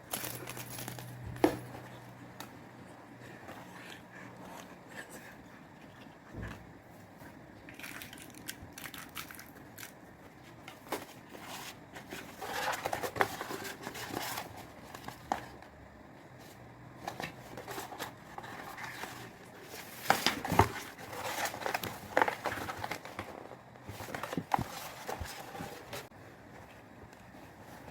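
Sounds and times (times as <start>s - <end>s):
plastic and paper crinkling: 7.7s - 15.6s, 17.0s - 27.9s.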